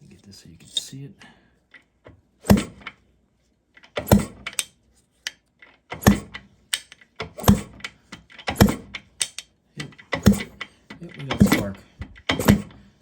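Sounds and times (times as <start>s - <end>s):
motorcycle kickstarter clacking: 2.4s - 3.0s, 3.8s - 4.7s, 5.6s - 12.9s.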